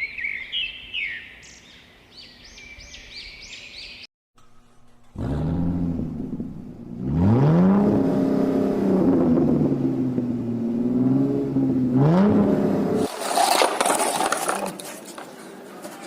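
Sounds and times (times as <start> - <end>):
cartoon engine revving: 5.1 - 9.3.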